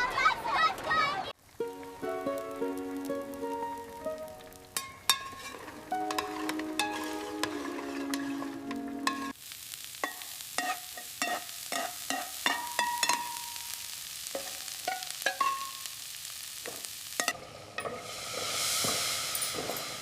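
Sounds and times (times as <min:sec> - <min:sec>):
food sizzling in a pan: 0:01.4 - 0:20.0
held musical tones: 0:01.6 - 0:09.3
metal spoon clinking on pan: 0:04.8 - 0:08.4, 0:09.0 - 0:09.3, 0:10.0 - 0:13.8, 0:14.4 - 0:15.9, 0:17.2 - 0:18.0.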